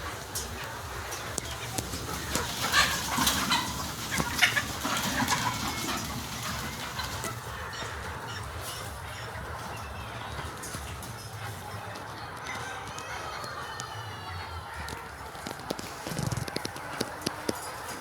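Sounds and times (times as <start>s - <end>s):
hens clucking: 0.0s - 18.0s.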